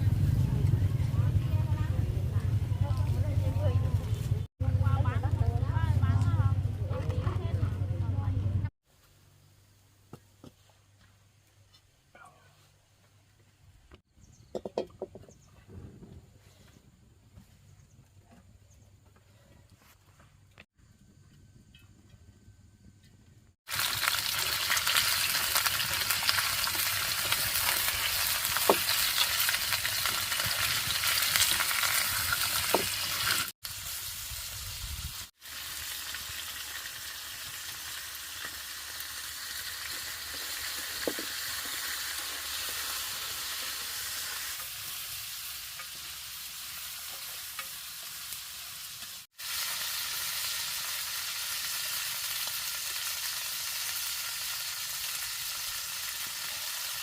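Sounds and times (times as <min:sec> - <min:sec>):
food sizzling in hot oil: 0:23.6 - 0:57.0.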